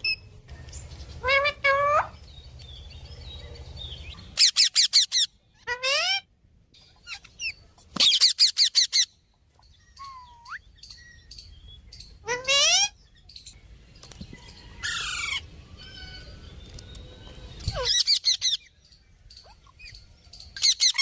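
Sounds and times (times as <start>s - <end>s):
parrot calling: 1.2s - 2.2s, 4.2s - 6.3s, 7.0s - 9.2s, 12.1s - 13.0s.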